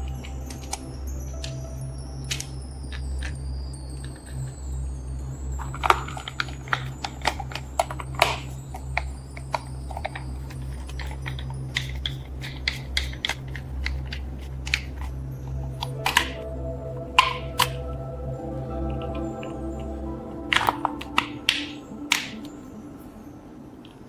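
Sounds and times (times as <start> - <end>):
steady low hum: 0.0 - 24.0
small hard objects clicking: 5.6 - 16.4.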